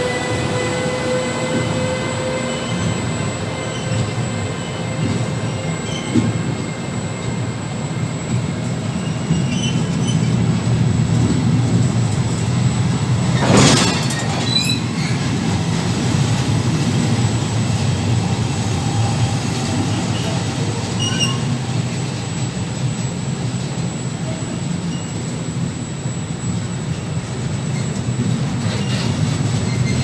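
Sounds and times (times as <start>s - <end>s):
train wheels rumbling on track: 0.0s - 30.0s
wheel squeals: 9.0s - 10.4s, 13.2s - 15.7s, 19.7s - 21.7s, 28.6s - 30.0s.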